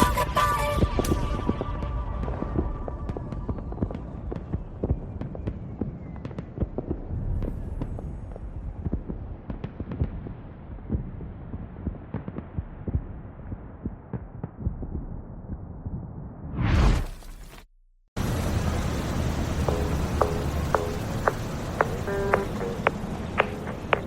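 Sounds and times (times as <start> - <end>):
crackling pops and clicks: 19.0 - 24.0.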